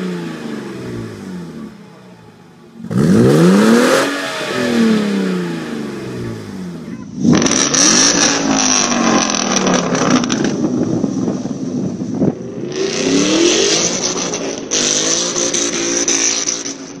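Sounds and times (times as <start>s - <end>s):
car exhaust: 0.0s - 17.0s
engine revving: 2.8s - 10.7s, 12.6s - 17.0s
exhaust crack: 7.1s - 17.0s.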